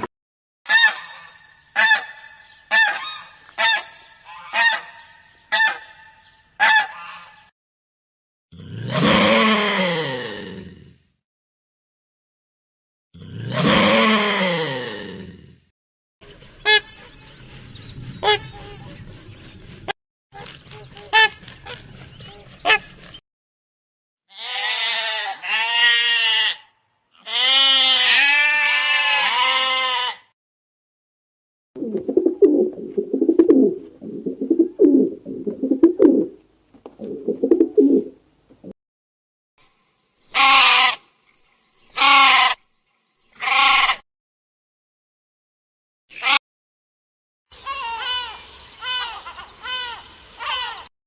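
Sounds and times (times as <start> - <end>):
sheep bleating: 24.3 - 30.3, 43.4 - 44.0.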